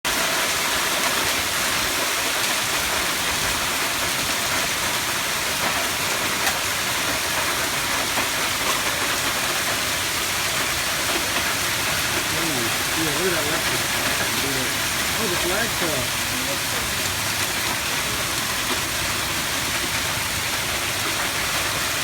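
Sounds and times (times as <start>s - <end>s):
heavy hail on hard surfaces: 0.1s - 22.0s
sharp hail impacts: 0.1s - 22.0s.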